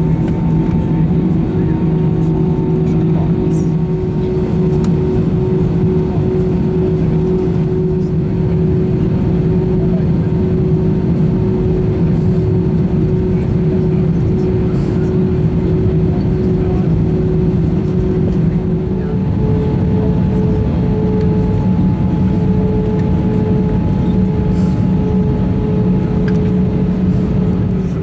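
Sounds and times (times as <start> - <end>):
jet engines droning: 0.0 - 28.0
steady hum: 14.9 - 28.0.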